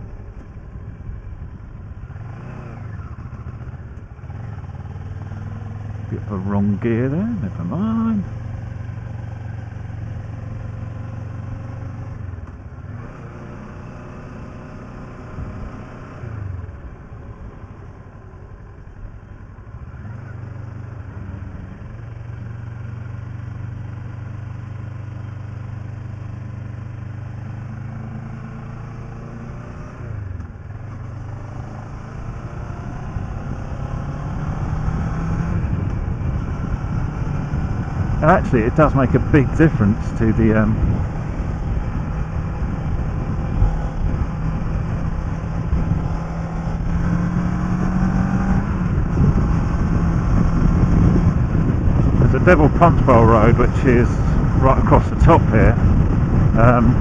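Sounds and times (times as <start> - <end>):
motorcycle engine running: 0.0 - 57.0
wind noise on microphone: 34.2 - 57.0.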